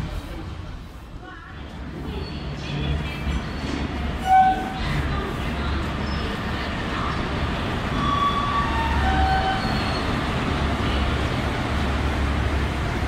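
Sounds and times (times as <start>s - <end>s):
train wheels rumbling on rails: 0.0s - 13.0s
wheel squeals: 2.1s - 2.6s, 3.3s - 4.9s, 7.9s - 10.2s.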